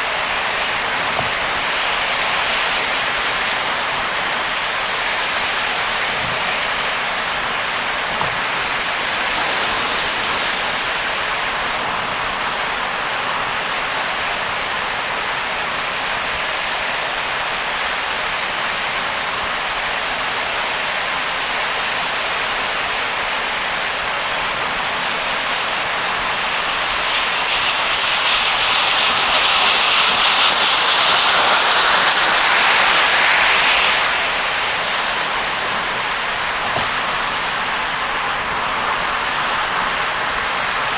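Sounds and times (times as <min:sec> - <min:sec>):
car tyres hissing on wet road: 0:00.0 - 0:40.9
heavy rain: 0:00.0 - 0:40.9.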